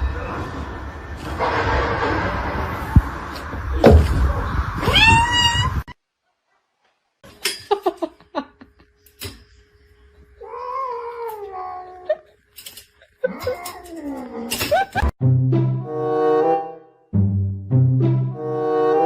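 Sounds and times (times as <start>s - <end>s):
cats meowing: 4.8s - 5.9s, 10.4s - 12.3s.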